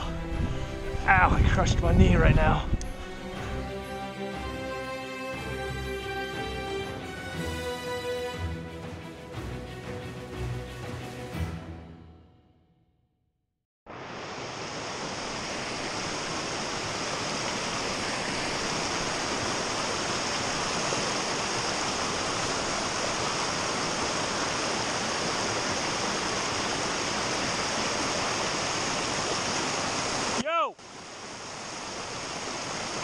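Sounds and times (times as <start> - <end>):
creek water rushing over rocks: 13.9 - 33.0.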